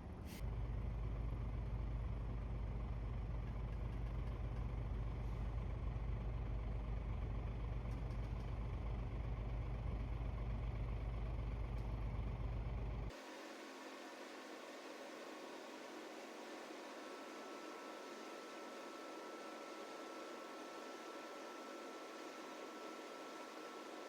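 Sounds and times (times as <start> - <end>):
low engine rumble: 0.0 - 13.2.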